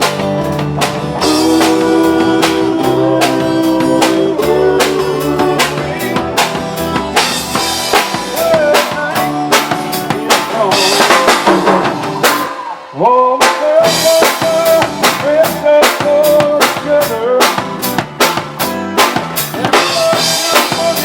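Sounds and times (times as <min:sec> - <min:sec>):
sustained guitar chords: 0:00.0 - 0:11.3
drum kit steady beat: 0:00.0 - 0:12.8, 0:13.4 - 0:21.0
lead guitar bending notes: 0:00.0 - 0:12.8.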